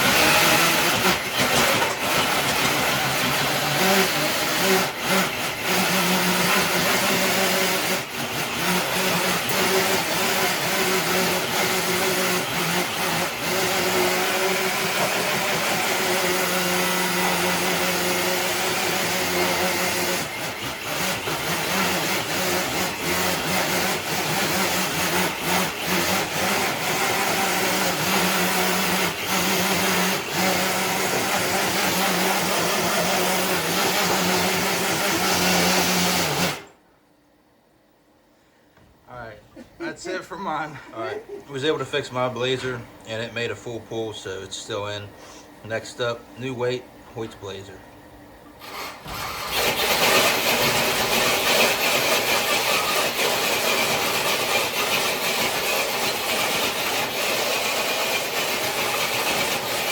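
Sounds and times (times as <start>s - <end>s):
sled scraping on concrete: 0.0s - 36.7s, 48.7s - 59.9s
electric motor and gears whining: 0.0s - 36.8s, 48.6s - 59.9s.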